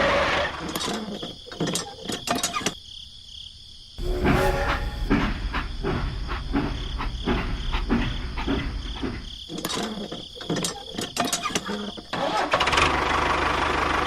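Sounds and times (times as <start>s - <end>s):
crickets chirping: 0.2s - 12.3s
low rumble: 4.0s - 9.3s
irregular knocks and clatter: 4.0s - 12.1s.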